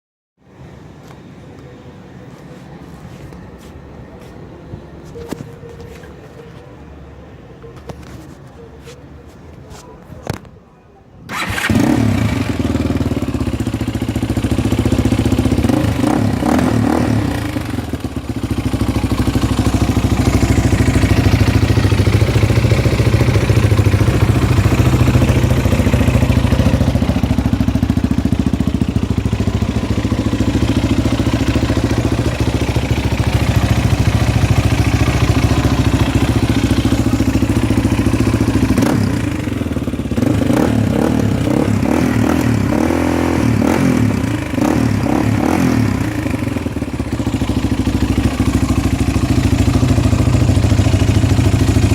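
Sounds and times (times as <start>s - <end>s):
motorcycle engine starting and running: 11.3s - 51.9s.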